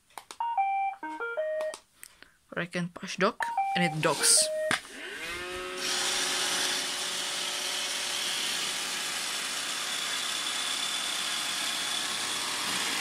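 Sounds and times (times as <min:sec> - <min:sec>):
robot vacuum motors whirring: 0:04.8 - 0:13.0.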